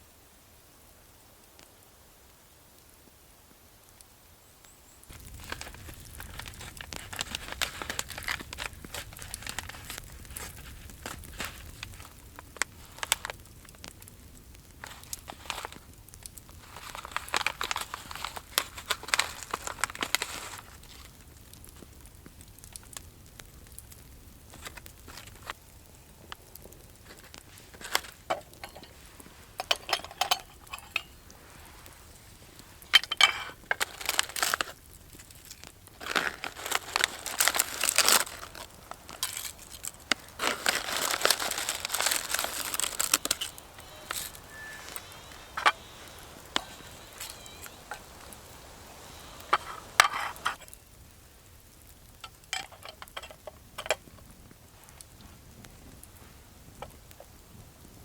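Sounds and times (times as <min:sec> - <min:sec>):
crinkling and rustling: 0:05.1 - 0:50.8, 0:52.0 - 0:58.0.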